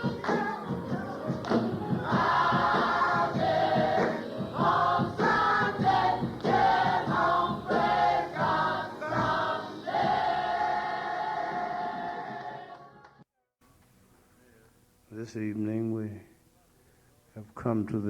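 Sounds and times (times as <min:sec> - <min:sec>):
steady beat: 0:00.0 - 0:10.7
choir singing: 0:00.0 - 0:13.2.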